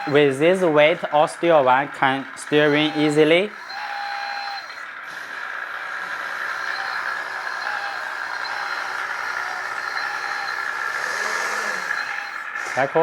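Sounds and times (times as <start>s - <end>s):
electric motor and hydraulic pump: 0.0s - 13.0s
simulated truck engine sound: 0.0s - 13.0s.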